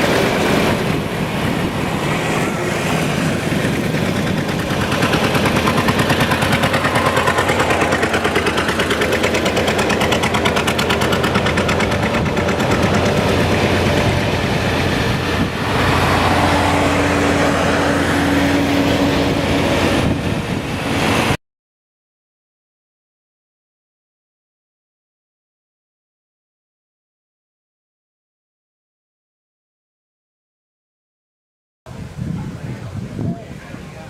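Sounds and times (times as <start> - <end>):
tractor engine running: 0.0 - 21.4.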